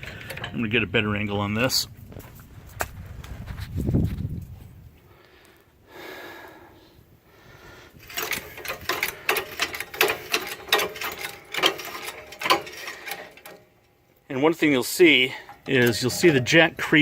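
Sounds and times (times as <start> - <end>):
hydraulic jack clicking: 8.0 - 14.0.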